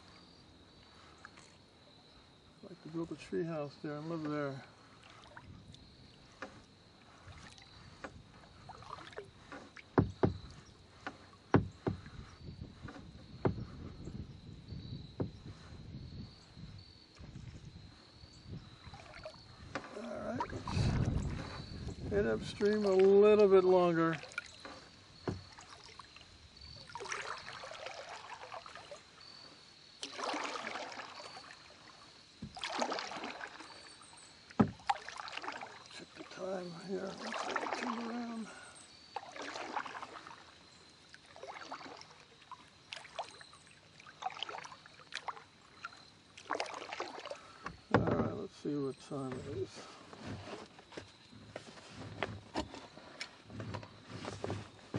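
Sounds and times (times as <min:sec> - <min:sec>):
paddle splashing in water: 0:03.1 - 0:54.9
sharp paddle knocks: 0:10.0 - 0:12.1.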